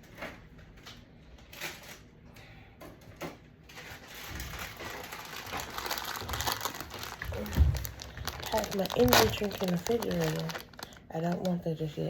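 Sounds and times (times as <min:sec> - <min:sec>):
dense crackling rustle: 0:03.7 - 0:11.6.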